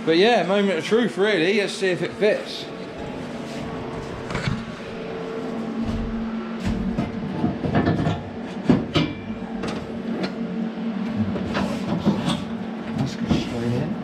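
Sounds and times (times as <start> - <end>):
steady low hum: 0.0 - 14.0
metal knocks and clanks: 6.6 - 9.9.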